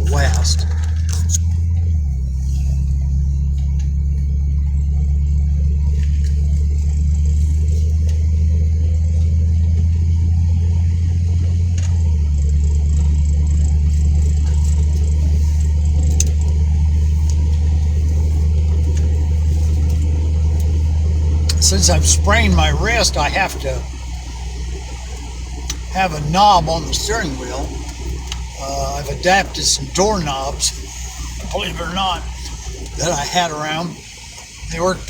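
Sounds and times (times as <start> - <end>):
car engine and road rumble: 0.0 - 35.0.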